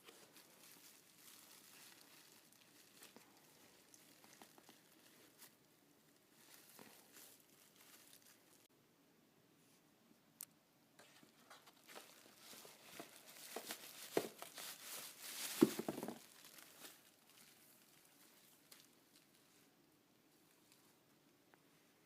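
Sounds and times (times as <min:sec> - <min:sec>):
packaging crinkling: 0:00.0 - 0:05.7, 0:06.3 - 0:08.7, 0:11.0 - 0:19.4.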